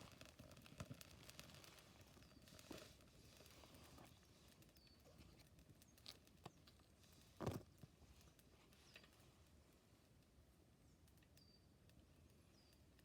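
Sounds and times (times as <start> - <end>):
campfire crackling and popping: 0.0 - 8.9.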